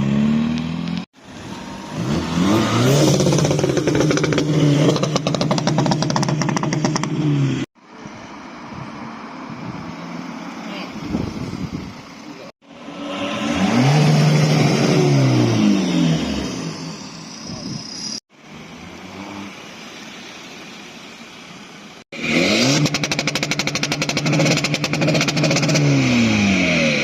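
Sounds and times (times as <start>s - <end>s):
car engines revving past: 0.0s - 11.7s, 12.6s - 17.4s.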